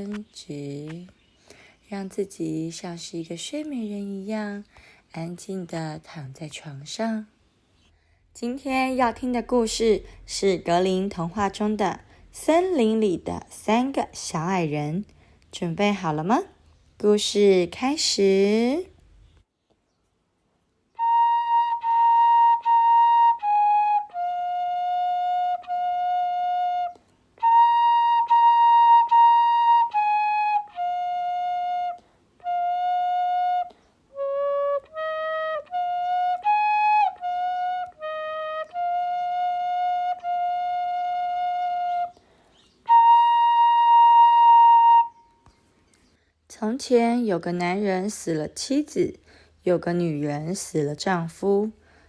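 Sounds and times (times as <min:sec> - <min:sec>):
slow flute-like tune: 0:20.9 - 0:45.7.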